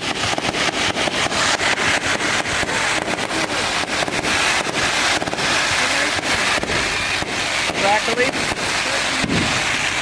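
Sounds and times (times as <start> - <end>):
fireworks crackling and popping: 0.0 - 10.0
steady hiss: 0.0 - 10.0.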